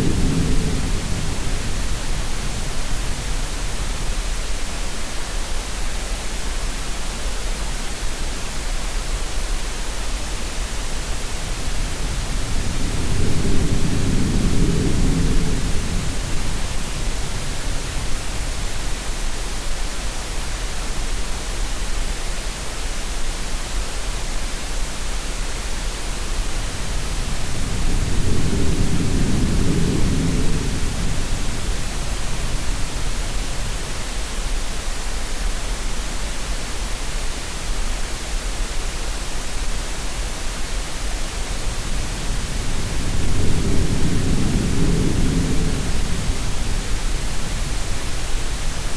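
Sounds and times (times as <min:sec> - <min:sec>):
steady hiss noise: 0:00.0 - 0:48.9.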